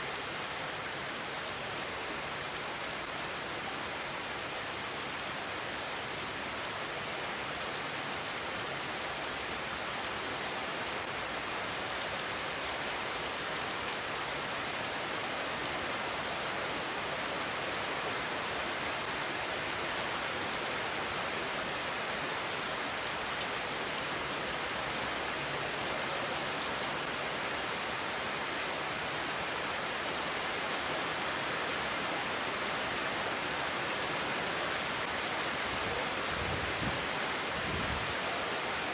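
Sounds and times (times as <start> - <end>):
dense rain falling: 0.0 - 38.9.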